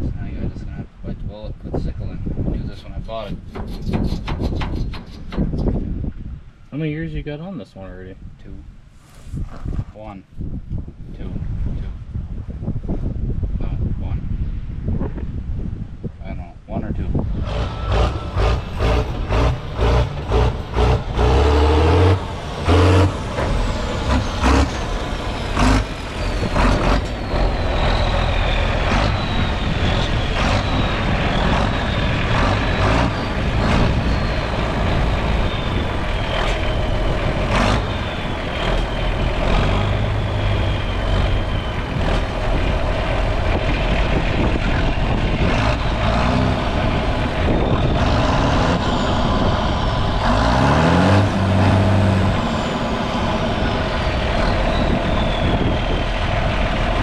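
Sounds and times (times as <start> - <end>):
rapid metal clanks and knocks: 3.4 - 5.7
large diesel engine running: 17.1 - 57.0
thin whistle falling in pitch: 22.9 - 42.4, 52.4 - 56.3.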